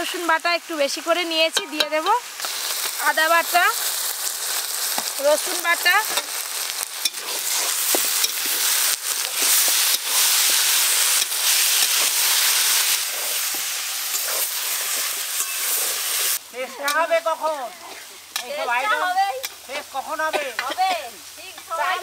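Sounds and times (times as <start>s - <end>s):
onions sizzling in oil: 0.0s - 22.0s
metal spatula scraping a pan: 7.0s - 17.1s.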